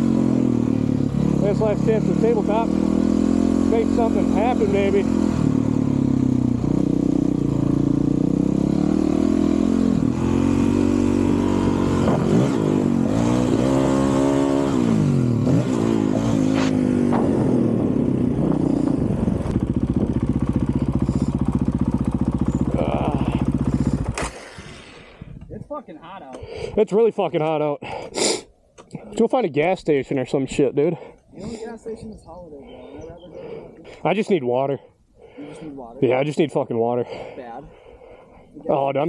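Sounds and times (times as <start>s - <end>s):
motorcycle engine revving: 0.0s - 25.4s.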